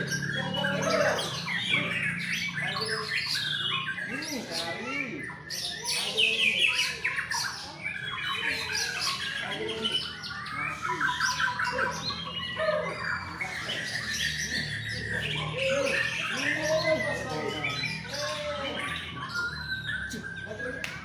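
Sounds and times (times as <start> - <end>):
shamas singing whistled phrases: 7.6 - 21.0.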